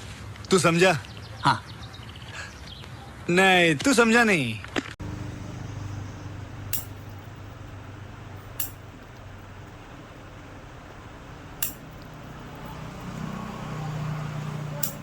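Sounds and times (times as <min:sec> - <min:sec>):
low steady hum: 0:05.0 - 0:12.6.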